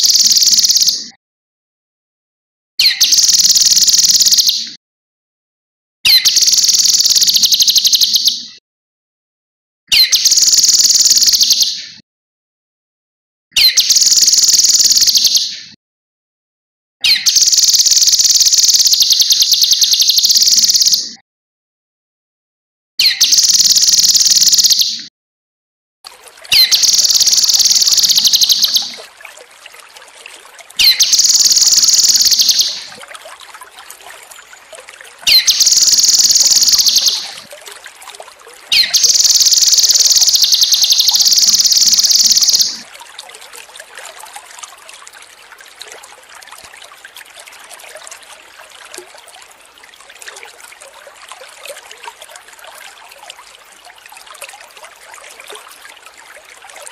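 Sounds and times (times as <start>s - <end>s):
trickling water: 0.0s - 0.9s, 2.8s - 4.5s, 6.1s - 8.1s, 10.0s - 11.6s, 13.6s - 15.4s, 17.1s - 21.0s, 23.0s - 24.8s, 26.1s - 56.9s
bird chattering song: 0.0s - 1.0s, 17.1s - 21.0s, 26.5s - 29.0s, 30.8s - 32.9s, 35.3s - 37.4s, 38.7s - 42.8s.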